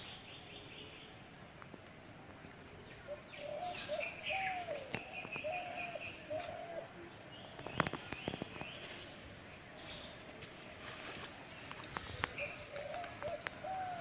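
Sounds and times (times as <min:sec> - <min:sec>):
birds chirping: 0:02.3 - 0:14.0
birds cooing: 0:03.0 - 0:09.0, 0:11.9 - 0:14.0.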